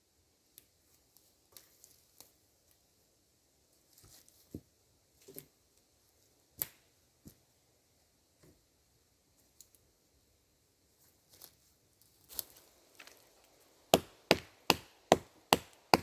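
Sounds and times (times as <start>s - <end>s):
wood snapping and knocking: 12.8s - 16.0s.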